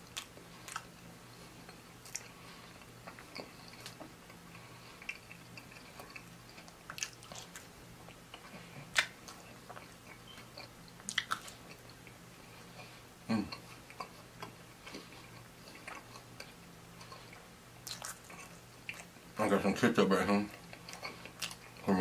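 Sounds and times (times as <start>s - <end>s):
biting and chewing crust: 0.0s - 19.2s, 20.5s - 22.0s
faint steady hum: 0.0s - 22.0s
wet mouth clicks and smacks: 8.9s - 9.9s, 11.0s - 11.9s.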